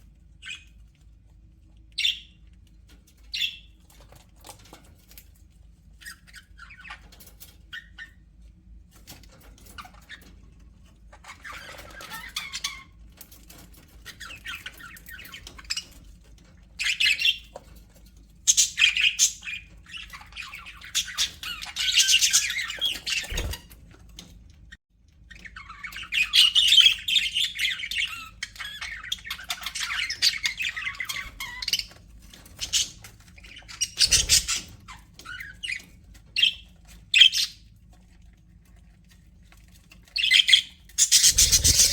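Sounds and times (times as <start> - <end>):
budgerigars chirping and chattering: 2.0 - 2.4, 3.2 - 3.8, 18.5 - 23.7, 25.4 - 37.6, 40.1 - 41.9.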